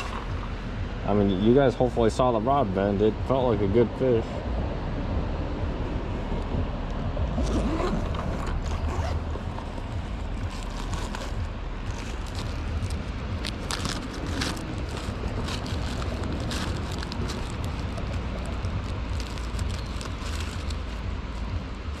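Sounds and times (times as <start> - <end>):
handling clicks and rustles: 7.4 - 22.0.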